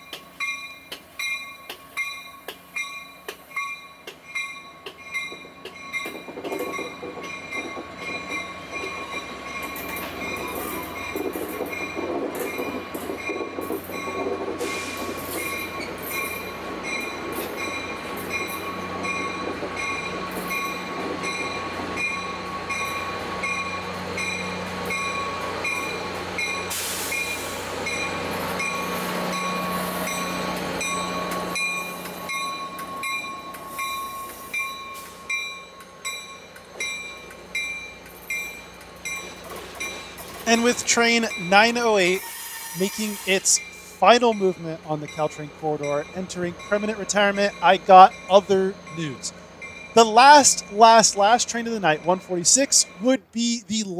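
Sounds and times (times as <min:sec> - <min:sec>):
diesel locomotive engine: 0:00.0 - 0:53.9
high wheel squeal: 0:41.4 - 0:44.0.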